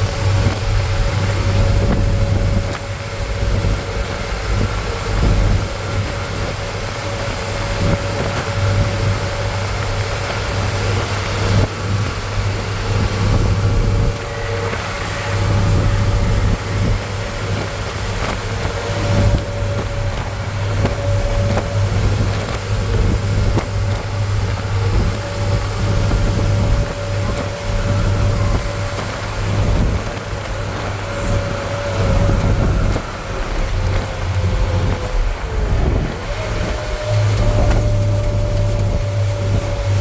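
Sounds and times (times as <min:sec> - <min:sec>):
road noise rushing: 0:00.0 - 0:40.0
truck engine droning: 0:00.0 - 0:40.0.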